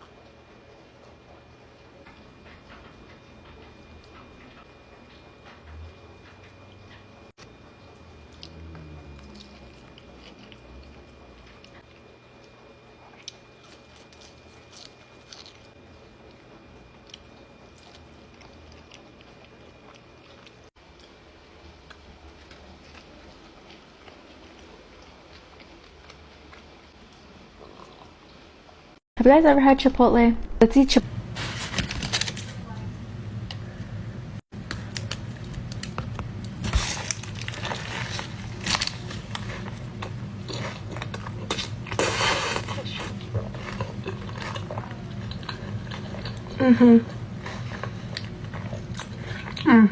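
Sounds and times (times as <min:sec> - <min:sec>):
steady low hum: 0:00.0 - 0:49.9
chewing and biting food: 0:07.9 - 0:21.2, 0:21.8 - 0:28.1, 0:34.6 - 0:49.7
crunching bites: 0:34.6 - 0:46.5.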